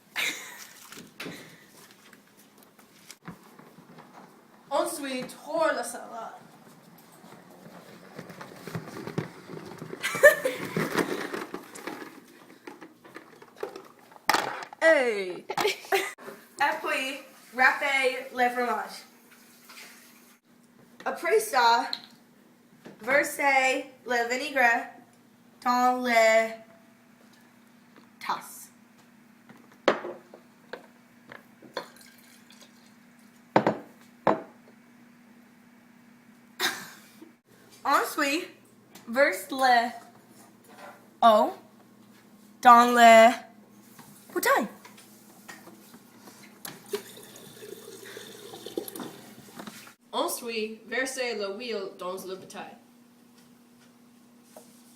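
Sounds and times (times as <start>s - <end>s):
liquid pouring into cups: 31.8s - 33.4s, 46.6s - 49.9s
liquid dripping: 46.6s - 49.8s.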